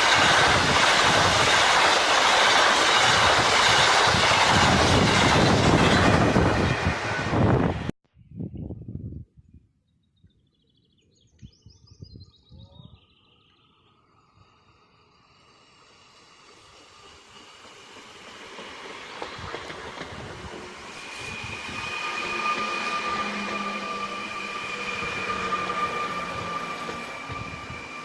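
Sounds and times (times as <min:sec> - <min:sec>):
train approaching: 0:00.0 - 0:07.9, 0:13.8 - 0:28.0
birds chirping: 0:09.8 - 0:15.2
steady whining tones: 0:13.5 - 0:28.0.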